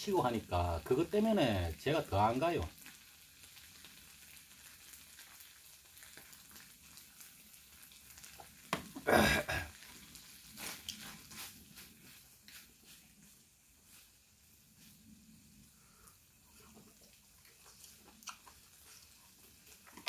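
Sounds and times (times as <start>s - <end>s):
octopus sizzling in a frying pan: 0.0s - 20.0s
man exhaling throatily: 9.0s - 9.7s.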